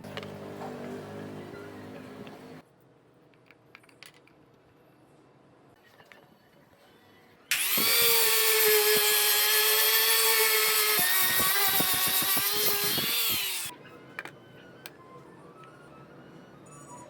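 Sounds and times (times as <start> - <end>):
electric power tool on wood: 7.5 - 13.7.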